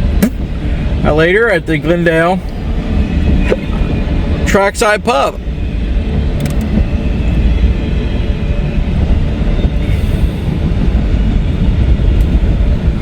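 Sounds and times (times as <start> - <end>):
freight train rumbling on rails: 0.0 - 13.0.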